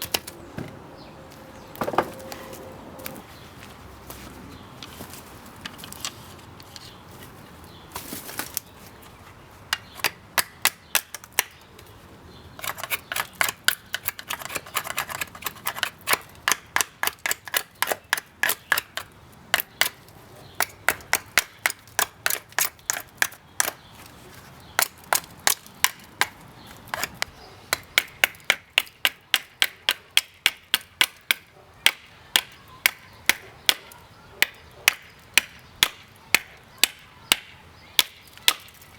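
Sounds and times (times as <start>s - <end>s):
knife chopping wood: 9.8s - 11.6s, 12.6s - 20.0s, 20.6s - 23.8s, 24.8s - 38.8s.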